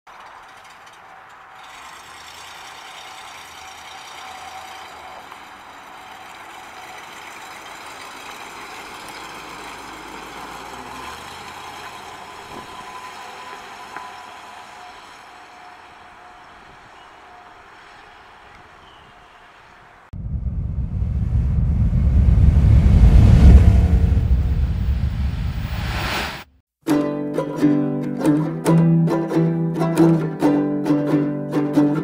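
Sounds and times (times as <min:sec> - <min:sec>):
car engine driving past: 0:01.2 - 0:15.2, 0:20.2 - 0:26.5.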